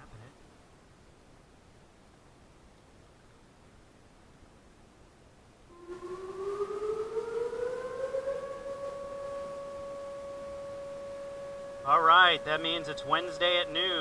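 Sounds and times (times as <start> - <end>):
warning siren winding up: 5.7 - 14.0.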